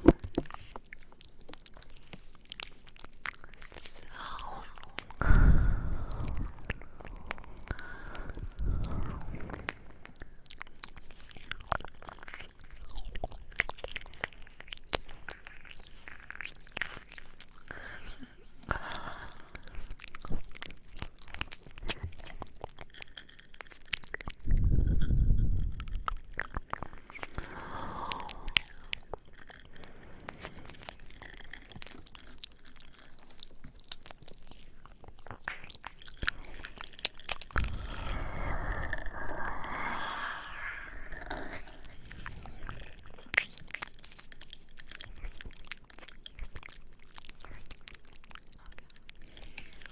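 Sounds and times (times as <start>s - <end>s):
mouth clicks and smacks: 0.0s - 49.9s.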